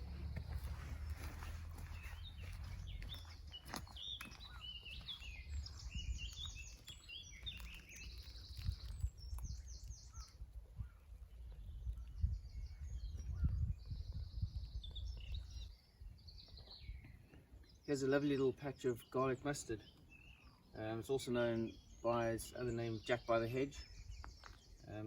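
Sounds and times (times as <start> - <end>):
steady low rumble: 0.0 - 3.7
wild birds singing: 0.0 - 25.0.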